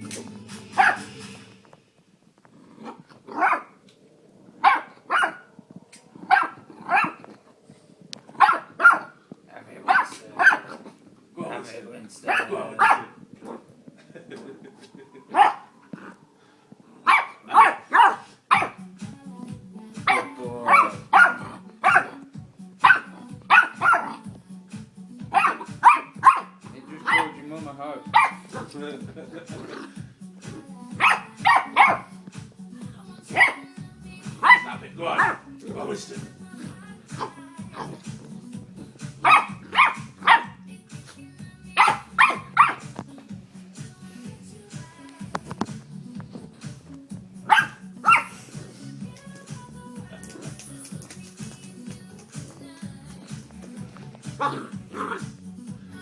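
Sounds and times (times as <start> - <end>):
background music: 0.0 - 56.0
puppy barking: 0.7 - 1.2, 2.9 - 3.8, 4.6 - 5.5, 6.2 - 7.3, 8.3 - 9.2, 9.8 - 11.0, 12.2 - 13.6, 15.2 - 16.1, 17.0 - 18.8, 20.0 - 24.3, 25.3 - 27.4, 28.1 - 28.7, 31.0 - 32.2, 33.3 - 33.7, 34.3 - 35.5, 39.1 - 40.6, 41.8 - 43.0, 47.4 - 48.5.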